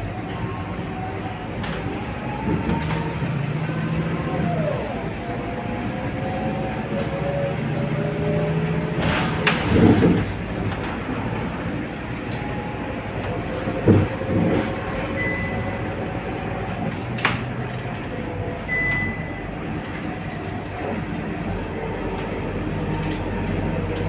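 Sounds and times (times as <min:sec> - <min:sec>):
bus diesel engine running: 0:00.0 - 0:24.0
road rumble: 0:00.0 - 0:24.0
knocks and rattles: 0:08.9 - 0:15.6
short high beeps: 0:15.2 - 0:15.8, 0:18.7 - 0:19.4.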